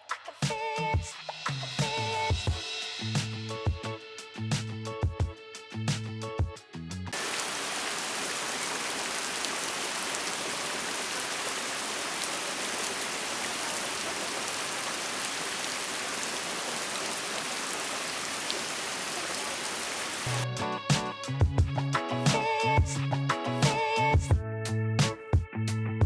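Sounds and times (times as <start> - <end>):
heavy rain: 7.1 - 20.4.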